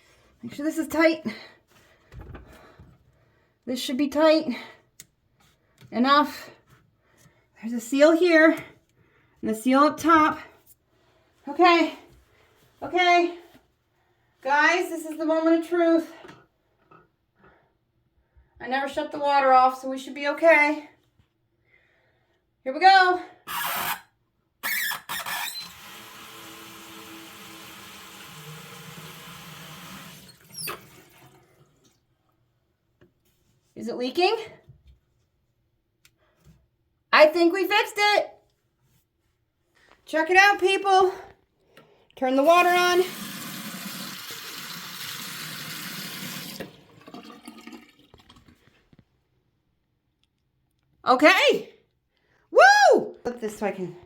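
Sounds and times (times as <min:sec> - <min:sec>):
faucet water running into basin: 0:25.4 - 0:32.0, 0:42.7 - 0:48.6.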